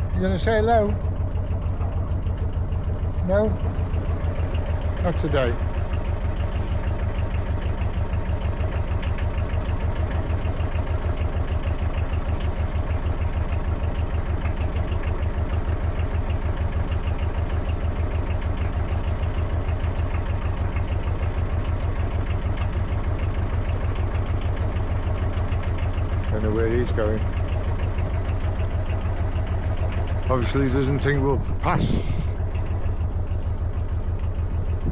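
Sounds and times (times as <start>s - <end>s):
boat diesel engine chugging: 0.0s - 34.9s.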